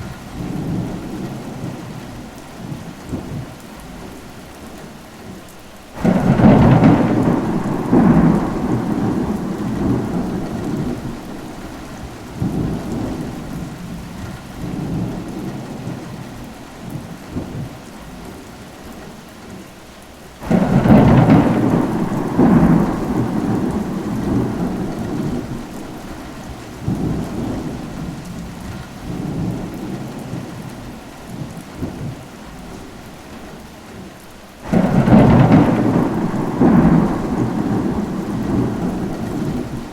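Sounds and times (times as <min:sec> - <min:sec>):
steady rain: 0:00.0 - 0:39.9
thunder rumbling: 0:06.0 - 0:16.2, 0:20.4 - 0:32.7, 0:34.6 - 0:39.9.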